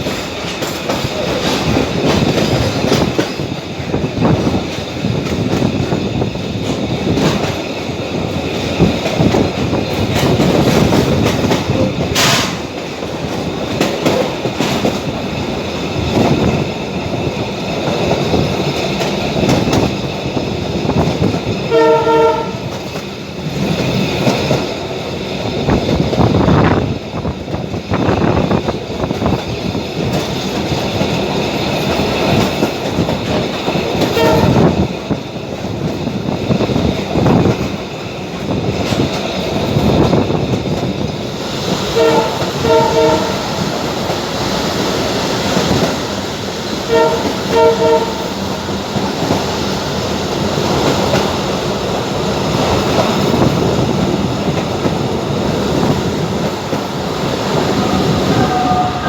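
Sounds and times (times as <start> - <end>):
train wheels rumbling on rails: 0.0 - 59.0
train horn blast: 21.7 - 22.8, 34.1 - 34.8, 41.9 - 43.6, 46.8 - 48.4, 57.6 - 59.0.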